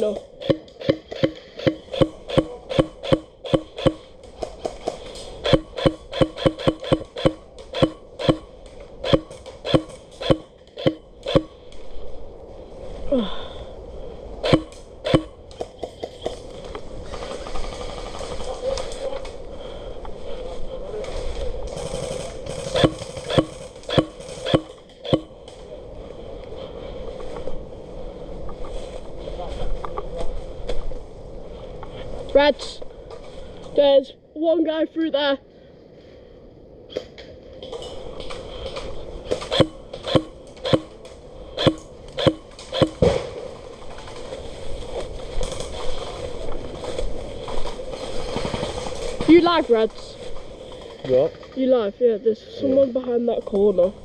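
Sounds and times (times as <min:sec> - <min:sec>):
steady background noise: 0:00.0 - 0:54.0
airsoft gunshots: 0:00.4 - 0:04.1, 0:05.4 - 0:11.5, 0:14.4 - 0:15.3, 0:21.8 - 0:25.3, 0:39.3 - 0:41.0, 0:41.6 - 0:43.3.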